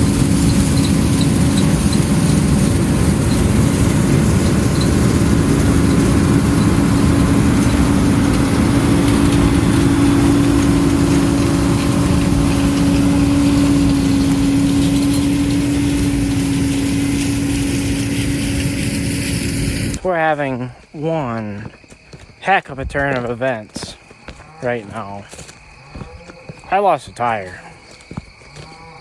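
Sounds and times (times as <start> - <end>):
combine harvester engine drone: 0.0 - 21.7.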